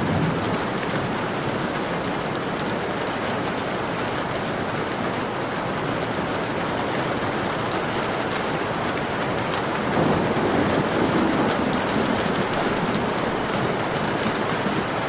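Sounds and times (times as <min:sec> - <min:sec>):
rain pattering on window: 0:00.0 - 0:15.0.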